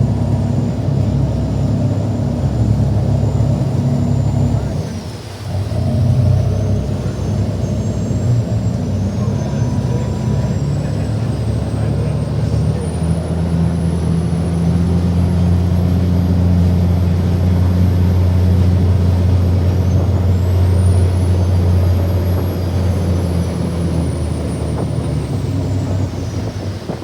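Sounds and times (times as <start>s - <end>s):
ferry engines droning: 0.0s - 27.0s.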